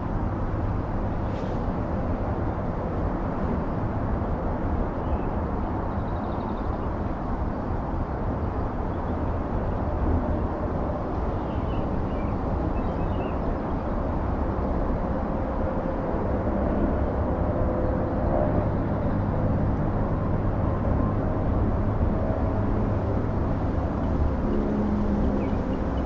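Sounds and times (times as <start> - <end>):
low outdoor rumble: 8.0 - 26.0.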